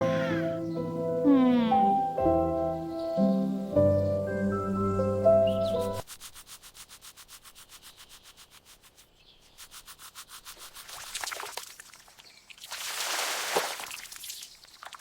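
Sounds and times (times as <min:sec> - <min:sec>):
fast rubbing strokes: 0:05.8 - 0:11.5.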